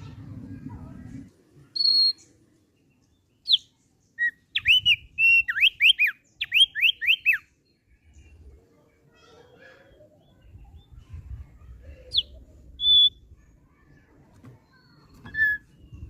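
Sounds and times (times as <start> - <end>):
bird singing clear whistles: 1.8 - 2.3, 3.4 - 7.5, 12.1 - 13.2, 14.6 - 16.0.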